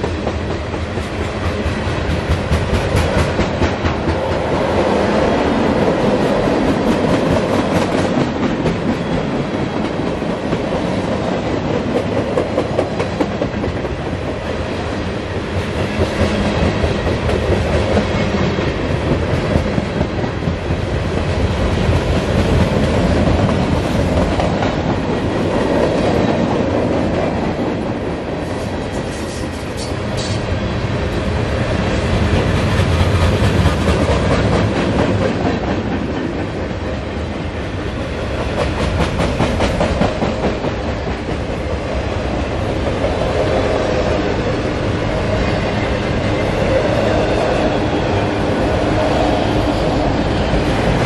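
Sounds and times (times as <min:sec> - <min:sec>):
freight cars rumbling on rails: 0:00.0 - 0:51.0
wheels clickety-clack over rail joints: 0:00.0 - 0:51.0.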